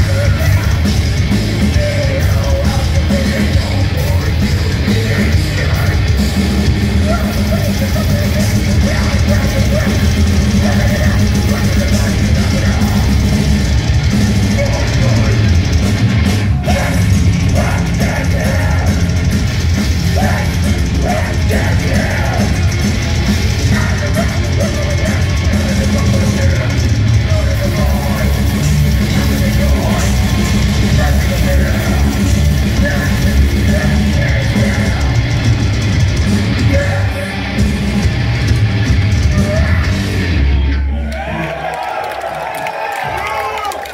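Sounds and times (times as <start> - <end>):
pounding drums: 0.0 - 40.3
distorted guitars: 0.0 - 41.8
shouted vocals: 16.4 - 19.3, 20.0 - 35.2, 39.3 - 43.9.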